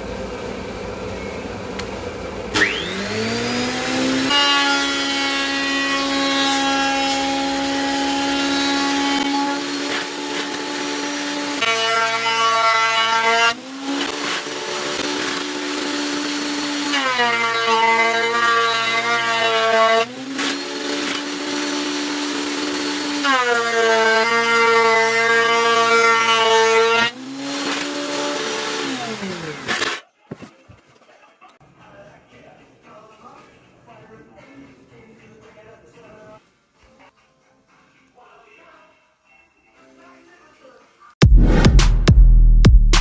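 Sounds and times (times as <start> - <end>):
thickness planer whining: 0.0 - 30.0
boards being planed: 2.6 - 30.0.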